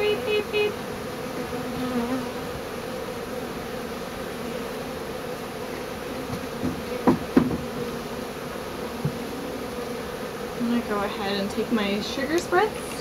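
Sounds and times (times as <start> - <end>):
bee swarm buzzing: 0.0 - 13.0
short knocks: 6.3 - 7.7.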